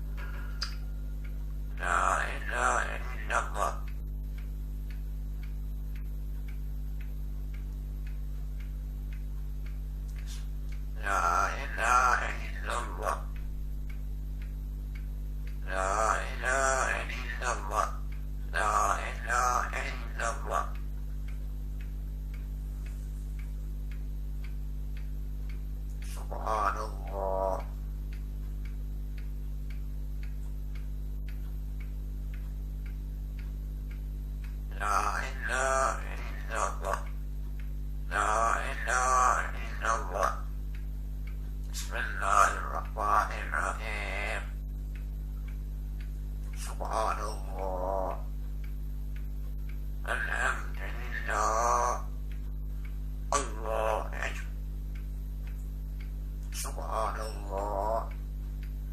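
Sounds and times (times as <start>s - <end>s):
faint even ticking: 0.0s - 58.9s
steady electrical hum: 0.0s - 58.9s
voice-like call: 1.7s - 4.0s, 10.2s - 13.4s, 15.6s - 20.8s, 26.0s - 27.8s, 34.7s - 37.2s, 38.1s - 40.6s, 41.8s - 44.6s, 46.6s - 48.4s, 50.0s - 52.2s, 53.3s - 54.6s, 56.5s - 58.2s.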